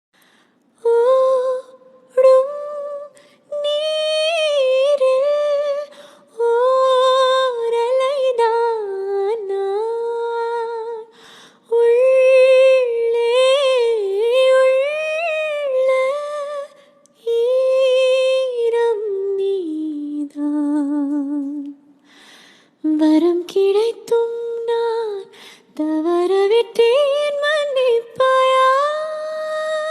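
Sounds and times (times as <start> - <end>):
breaths: 0.2 - 0.7, 3.1 - 3.5, 5.9 - 6.3, 11.1 - 11.7, 21.9 - 22.8, 25.3 - 25.8.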